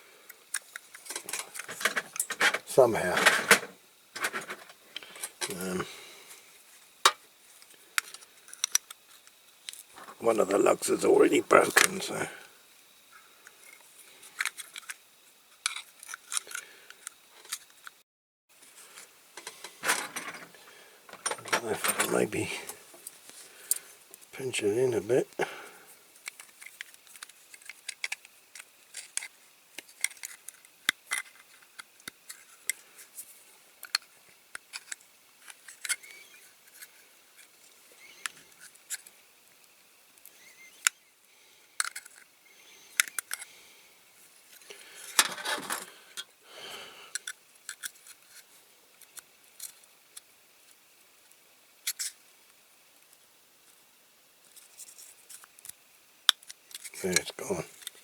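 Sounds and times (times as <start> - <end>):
hand tool clicking and scraping plastic: 0.5 - 5.5, 15.6 - 17.8, 26.2 - 32.8, 33.8 - 37.5, 41.8 - 42.3, 43.0 - 43.5, 44.6 - 46.3, 47.1 - 48.4.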